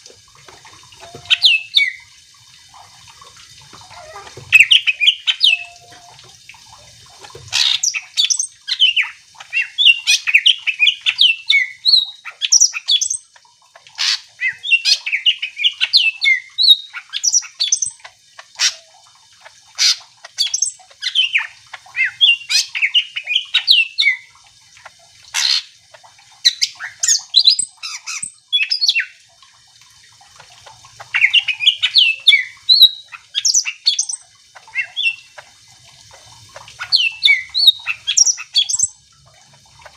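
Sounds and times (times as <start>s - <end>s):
bird singing chattering and whistling: 4.6s - 6.1s, 31.2s - 35.3s.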